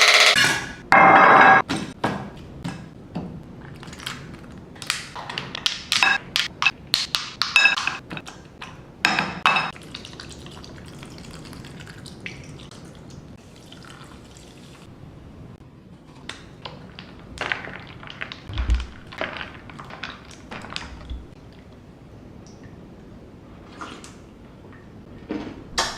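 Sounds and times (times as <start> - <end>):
glassware clinking: 9.1 - 9.7
liquid pouring and dripping: 9.7 - 14.8.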